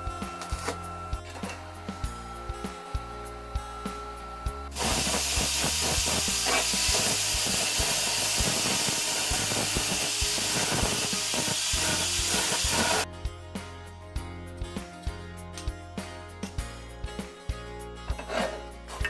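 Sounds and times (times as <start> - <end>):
background music: 0.0 - 19.0
loud hiss of air: 4.7 - 13.0.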